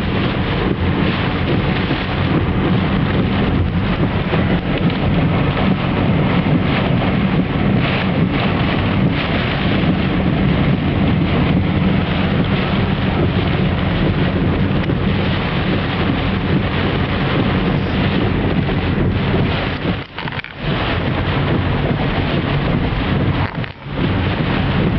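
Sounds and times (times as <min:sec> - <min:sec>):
rain: 0:00.0 - 0:24.9
vehicle hum: 0:00.0 - 0:24.9
wind: 0:00.0 - 0:24.9.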